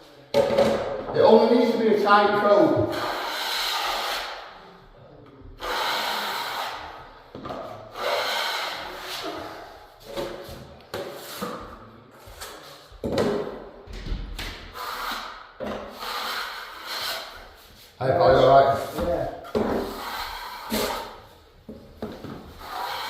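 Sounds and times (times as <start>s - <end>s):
trowel scraping plasterboard: 2.8s - 4.6s, 5.6s - 10.4s, 14.8s - 23.0s.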